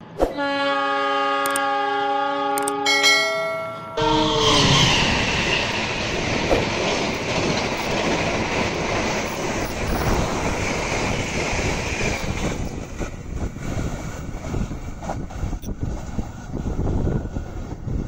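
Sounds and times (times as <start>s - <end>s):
train wheels rumbling on rails: 4.1s - 18.0s.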